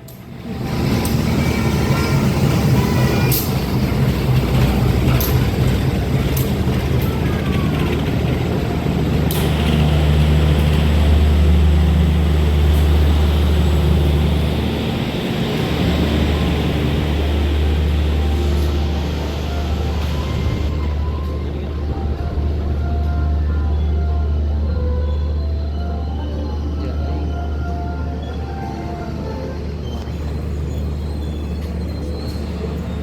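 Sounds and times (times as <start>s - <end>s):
diesel locomotive engine drone: 0.0s - 33.0s.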